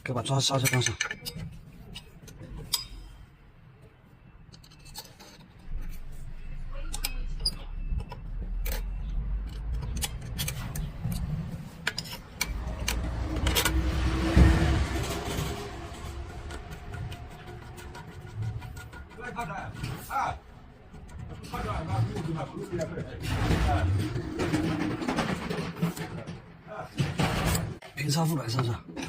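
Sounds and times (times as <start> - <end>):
metal tools clinking and scraping: 0.0 - 3.4, 4.4 - 26.5
low handling rumble: 5.9 - 25.0.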